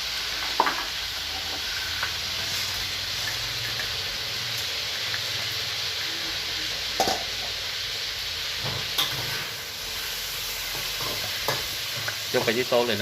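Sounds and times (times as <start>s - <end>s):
meat sizzling in a pan: 0.0s - 13.0s.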